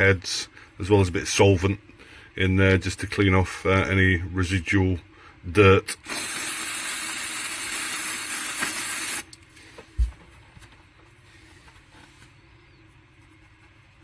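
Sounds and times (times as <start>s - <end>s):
faint handling sounds: 9.4s - 14.0s.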